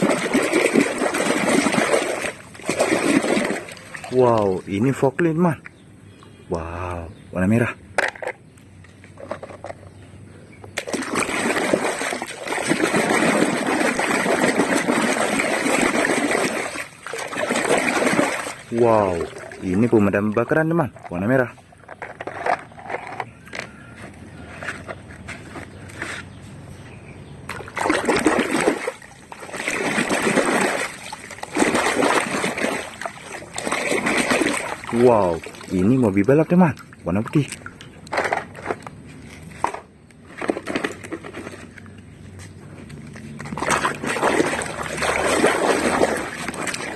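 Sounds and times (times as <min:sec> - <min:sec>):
water splashing over plastic toy: 0:00.0 - 0:04.8, 0:10.8 - 0:21.3, 0:27.5 - 0:38.7, 0:43.1 - 0:46.9.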